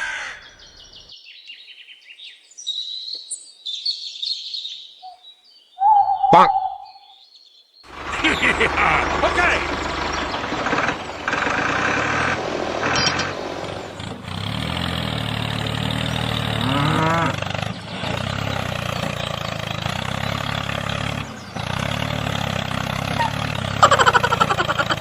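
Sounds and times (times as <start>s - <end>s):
tractor motor running: 7.9s - 25.0s
short rising squeal: 8.5s - 19.6s.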